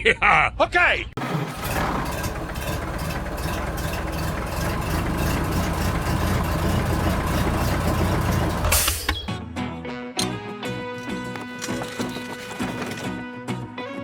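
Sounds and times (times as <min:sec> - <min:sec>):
tractor engine chugging: 0:01.2 - 0:09.2, 0:11.2 - 0:13.2.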